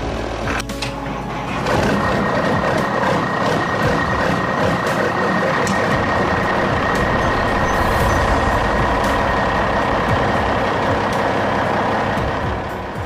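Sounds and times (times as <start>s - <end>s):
truck engine running: 0.0s - 13.0s
thin high tone: 5.7s - 12.6s.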